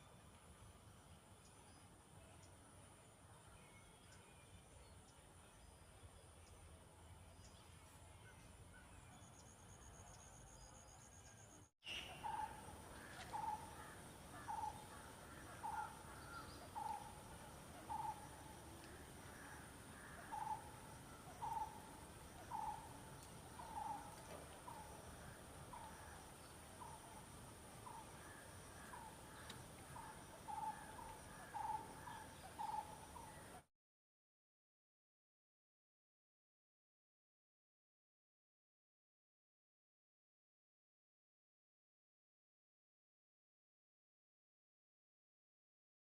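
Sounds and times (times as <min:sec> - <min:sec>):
faint high-pitched insect hum: 0:00.0 - 0:33.7.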